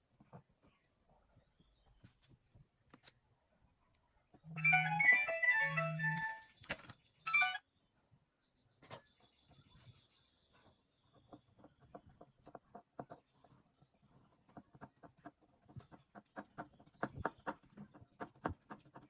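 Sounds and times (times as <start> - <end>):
rising electronic notes: 4.5 - 6.4
electronic melody: 4.5 - 6.5, 7.3 - 7.6.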